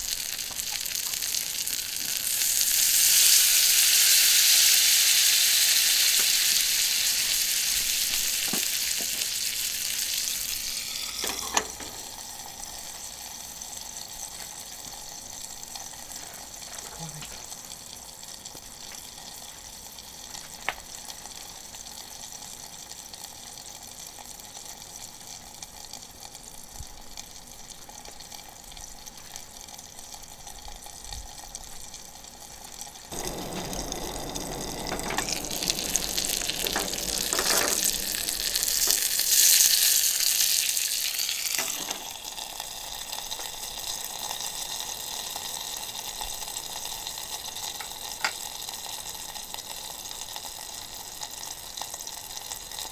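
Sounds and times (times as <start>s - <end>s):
meat sizzling in a frying pan: 0.0s - 14.8s, 33.1s - 52.9s.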